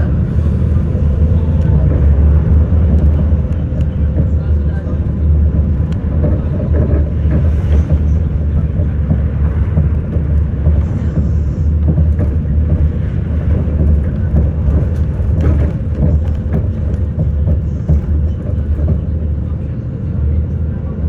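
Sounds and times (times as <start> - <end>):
bus engine and road rumble: 0.0 - 21.0
small rattles and clicks: 0.8 - 19.5.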